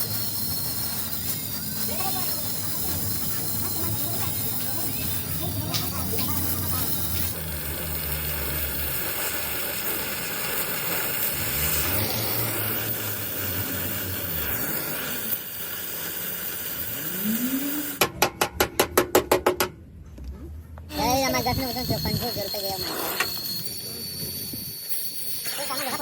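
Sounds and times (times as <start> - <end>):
hissing workshop noise: 0.0 - 26.0
rapid sharp knocks: 18.0 - 19.8.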